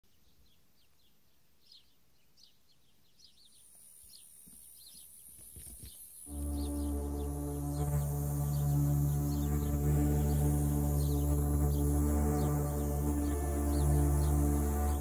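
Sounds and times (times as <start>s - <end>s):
faint birdsong chirps: 0.0s - 15.0s
loud music with held tones: 6.3s - 15.0s.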